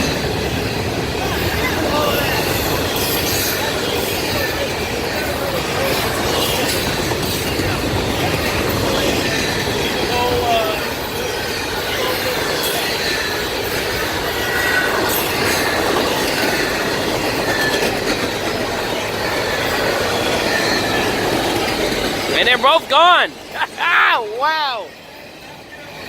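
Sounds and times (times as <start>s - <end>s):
freight trains rumbling and rattling: 0.0s - 26.0s.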